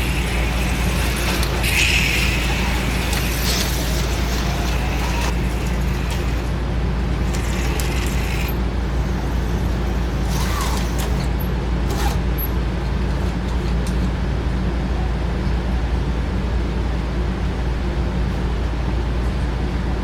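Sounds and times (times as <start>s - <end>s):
small electric motors whirring: 0.0s - 12.6s
low electrical hum: 0.0s - 20.0s.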